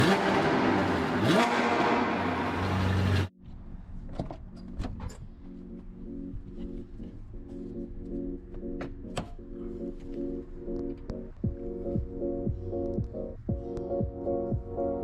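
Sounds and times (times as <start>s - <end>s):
engine revving: 0.0s - 3.3s
background music: 3.4s - 15.0s.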